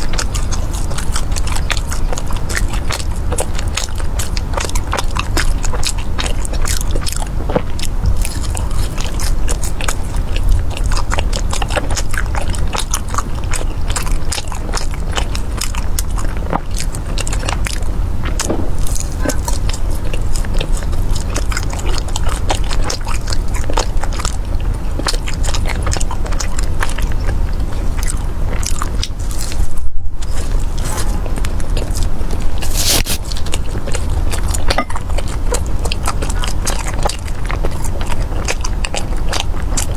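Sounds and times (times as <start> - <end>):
crunchy bites and chewing: 30.2 - 39.9.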